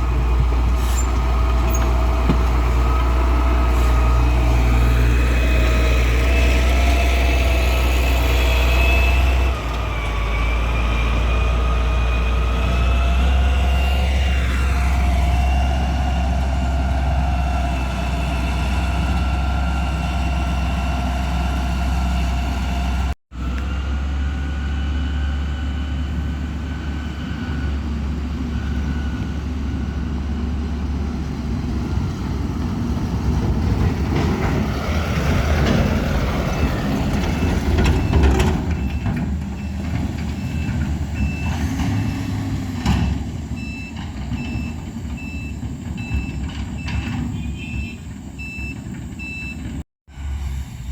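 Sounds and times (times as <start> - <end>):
diesel machinery engine hum: 0.0 - 50.9
reversing alarm beeping: 25.8 - 30.0, 36.5 - 42.5, 43.6 - 49.8.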